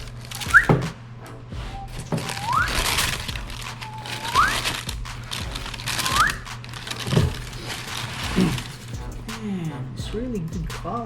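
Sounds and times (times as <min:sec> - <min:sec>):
paper packaging rustling: 0:00.0 - 0:00.8, 0:02.0 - 0:09.0.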